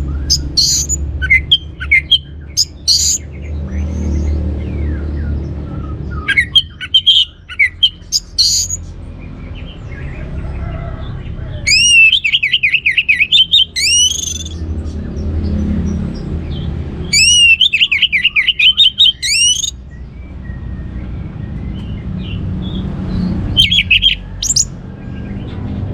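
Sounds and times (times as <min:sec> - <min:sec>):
thrush singing: 0:06.2 - 0:08.7, 0:11.6 - 0:14.6, 0:17.1 - 0:19.7, 0:23.5 - 0:24.7.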